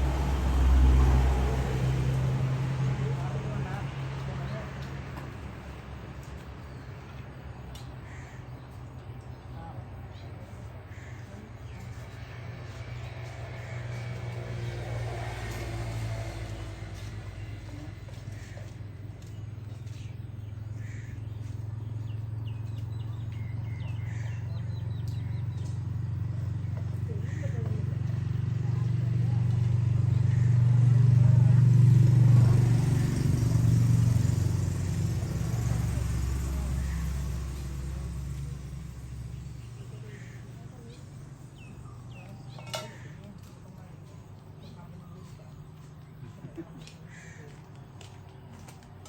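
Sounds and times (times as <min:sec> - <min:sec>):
low motor hum: 0:00.0 - 0:08.3, 0:09.0 - 0:49.0
low vehicle rumble: 0:00.0 - 0:49.0
small bird chirping: 0:35.7 - 0:46.3.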